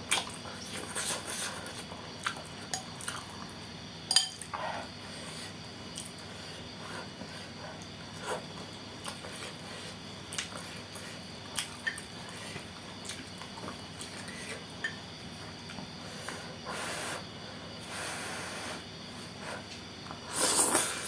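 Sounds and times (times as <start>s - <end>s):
wet chewing: 10.3s - 15.0s.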